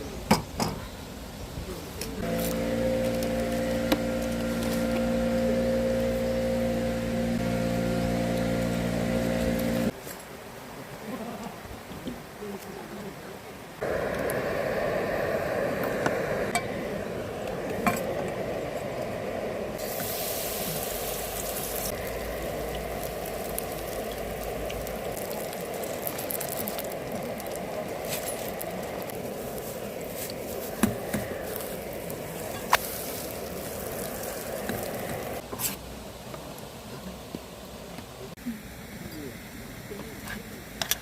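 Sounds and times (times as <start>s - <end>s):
food sizzling in a pan: 19.8s - 35.4s.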